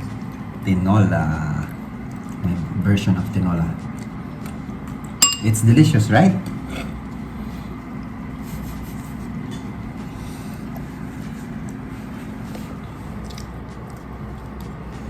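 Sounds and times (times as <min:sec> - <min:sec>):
low background hum: 0:00.0 - 0:15.0
cutlery clicking on plates: 0:05.2 - 0:05.7.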